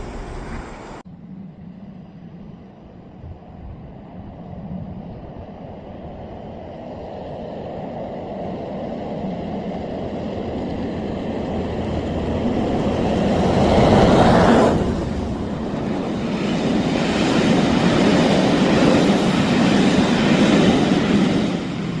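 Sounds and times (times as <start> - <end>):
train coaches rumbling: 0.0 - 1.0, 8.3 - 22.0
diesel train passing: 0.0 - 22.0.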